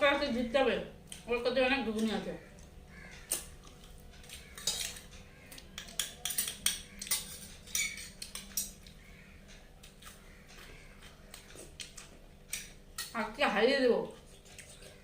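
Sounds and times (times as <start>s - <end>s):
tableware clinking and scraping: 4.2s - 8.9s.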